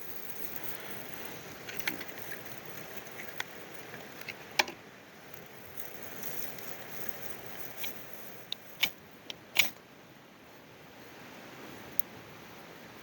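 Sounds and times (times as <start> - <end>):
campfire crackling and popping: 0.0 - 9.8.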